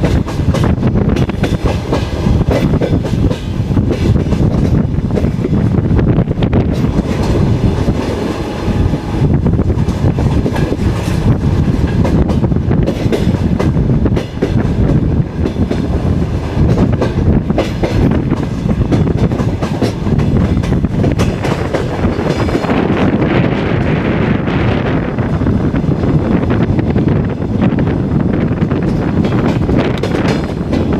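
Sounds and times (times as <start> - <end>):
train carriage rumble: 0.0 - 30.9
wheels clicking over rail joints: 9.6 - 22.9, 28.6 - 30.9.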